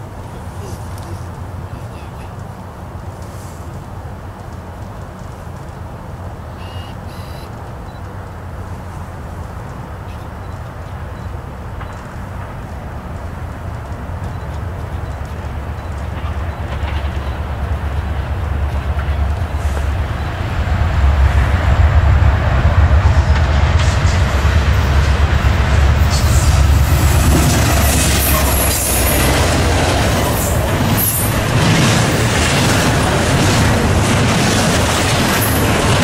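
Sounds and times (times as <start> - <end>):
diesel locomotive engine rumble: 0.0 - 36.0
wheels clicking over rail joints: 9.4 - 20.3, 23.3 - 36.0.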